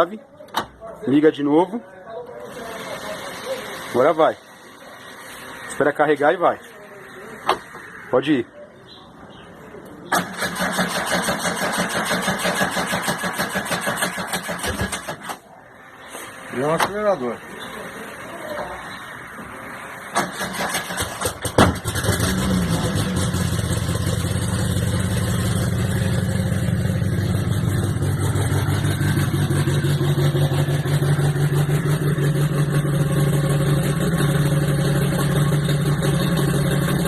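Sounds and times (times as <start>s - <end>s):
car engine starting and idling: 2.3s - 6.2s, 9.6s - 37.0s
engine starter cranking: 10.1s - 15.5s, 20.1s - 24.9s.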